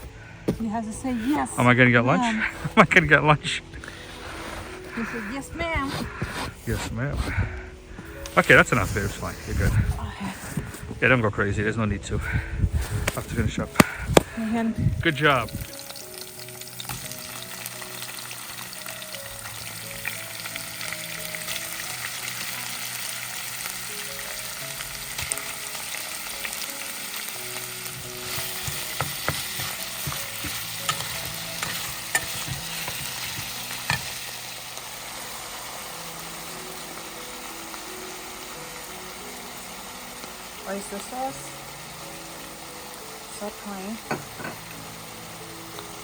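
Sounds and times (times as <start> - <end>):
food sizzling in a pan: 0.7 - 3.2, 3.9 - 7.2, 8.1 - 11.2, 12.7 - 46.0
utensil clicking against pan: 28.3 - 34.2.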